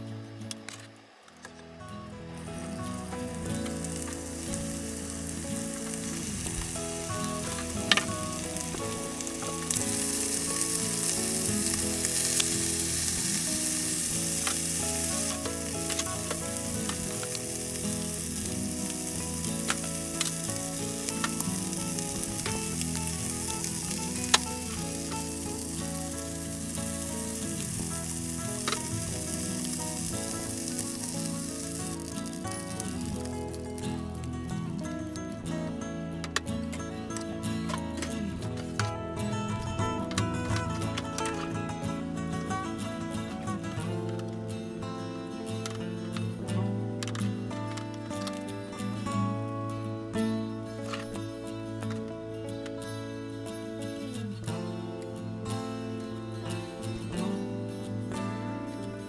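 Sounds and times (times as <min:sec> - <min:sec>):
chicken sizzling in frying pan: 0:02.3 - 0:34.5.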